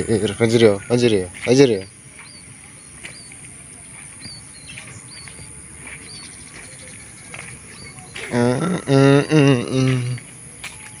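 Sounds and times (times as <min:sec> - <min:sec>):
bird chirping: 0:00.0 - 0:11.0
faint outdoor hiss: 0:00.0 - 0:11.0.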